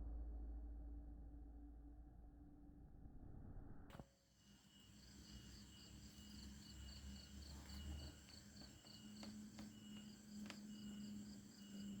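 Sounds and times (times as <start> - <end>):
insects chirping: 4.3 - 12.0
faint clicks: 5.4 - 12.0.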